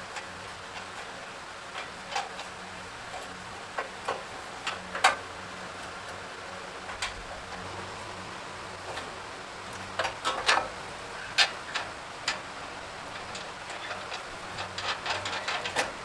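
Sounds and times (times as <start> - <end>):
hand tools clinking on metal: 13.1 - 16.0.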